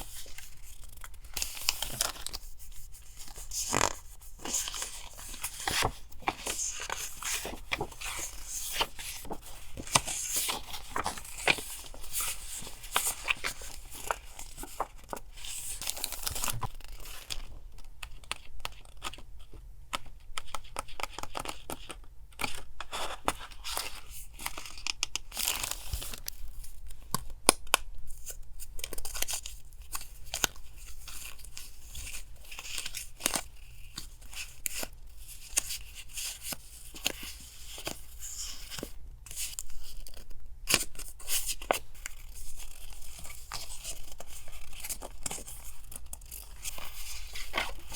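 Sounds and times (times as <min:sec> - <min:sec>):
paper tearing and crinkling: 0:00.0 - 0:17.3.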